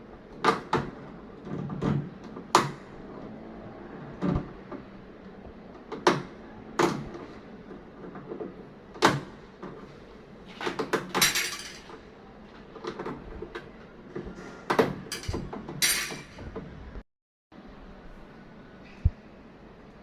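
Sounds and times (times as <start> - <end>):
hard objects knocking and clattering: 10.5 - 12.0, 12.6 - 17.0.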